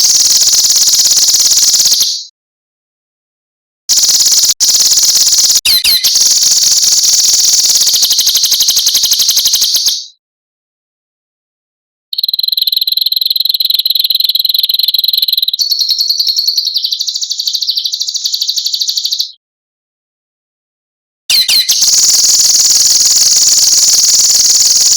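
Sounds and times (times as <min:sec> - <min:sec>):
songbird buzzing rattle call: 0:00.0 - 0:02.3, 0:03.9 - 0:10.2, 0:12.1 - 0:19.4, 0:21.3 - 0:24.9.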